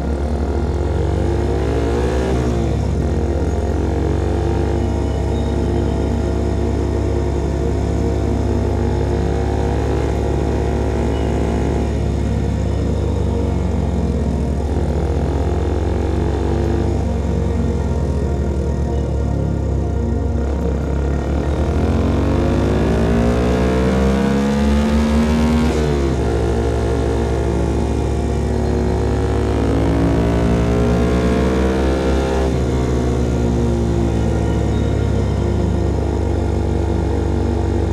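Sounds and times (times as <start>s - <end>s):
motorcycle exhaust cruising: 0.0s - 37.9s.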